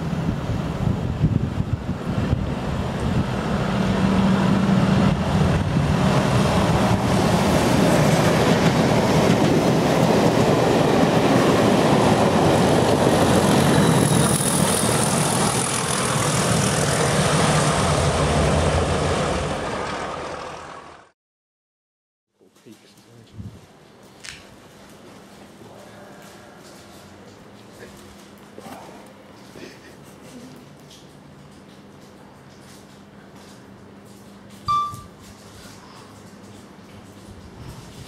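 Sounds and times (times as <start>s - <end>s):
locomotive engine: 2.0s - 21.1s
train wheels clattering on rails: 6.6s - 17.1s
thin high ringing: 34.7s - 35.2s.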